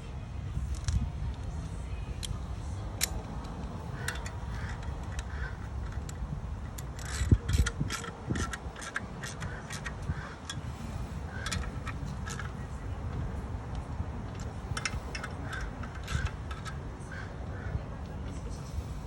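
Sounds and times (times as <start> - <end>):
metallic clicks and taps: 2.2 - 10.7, 11.3 - 16.8.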